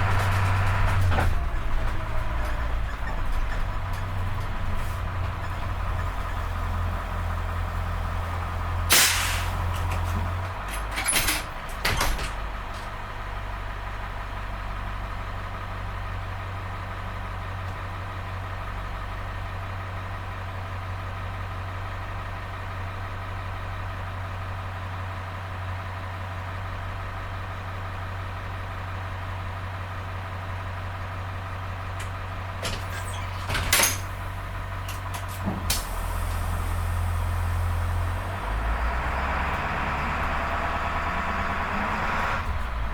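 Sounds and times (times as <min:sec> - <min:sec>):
diesel bus engine running: 0:00.0 - 0:42.9
short sharp sounds: 0:08.9 - 0:09.7.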